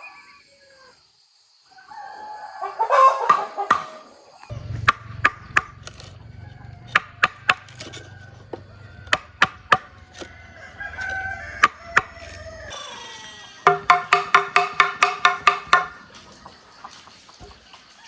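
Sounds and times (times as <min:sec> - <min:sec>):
rooster crowing: 0:01.7 - 0:03.6, 0:04.5 - 0:15.9
tool striking wood: 0:04.5 - 0:12.7, 0:13.7 - 0:16.1
chickens clucking: 0:04.5 - 0:13.0.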